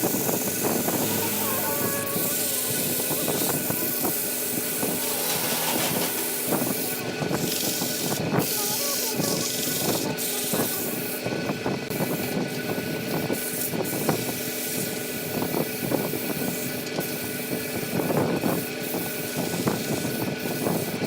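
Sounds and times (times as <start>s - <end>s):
woodworking machine motor hum: 0.0s - 8.1s
scraping and rasping wood: 0.8s - 4.0s, 4.6s - 7.0s.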